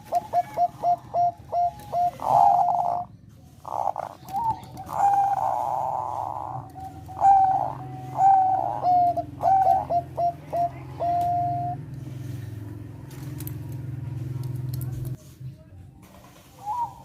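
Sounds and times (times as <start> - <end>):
dove cooing: 0.0 - 12.3, 16.6 - 17.0.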